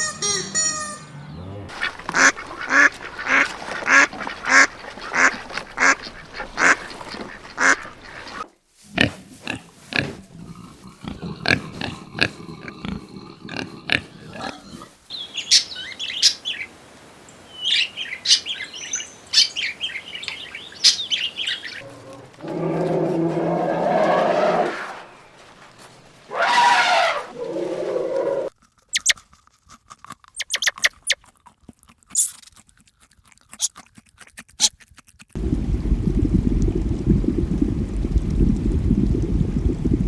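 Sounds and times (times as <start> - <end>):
ducks quacking: 0.0 - 10.2
low irregular animal calls: 17.4 - 25.6, 26.2 - 28.5
high rapid chirping: 30.4 - 31.2.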